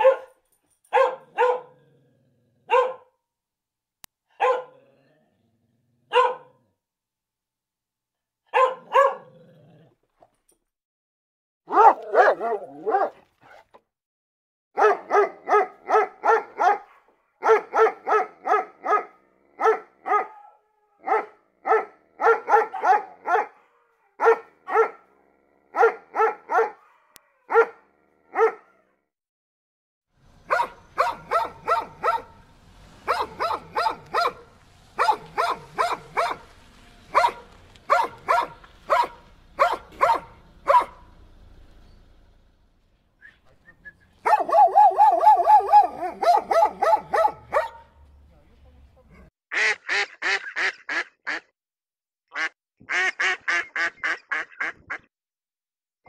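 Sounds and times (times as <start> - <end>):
dogs barking: 0.0 - 1.8, 2.6 - 3.1, 4.3 - 4.9, 6.1 - 6.6, 8.5 - 9.4, 11.7 - 13.7, 14.8 - 28.9, 30.4 - 41.2, 44.2 - 48.1.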